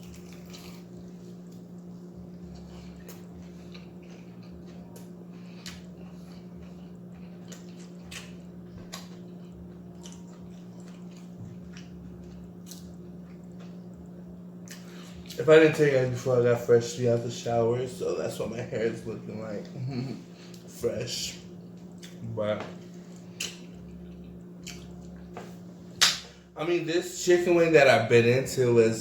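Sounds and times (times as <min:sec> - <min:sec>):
crunchy chewing: 0:00.0 - 0:15.4, 0:22.9 - 0:25.3
low hum: 0:00.0 - 0:29.0.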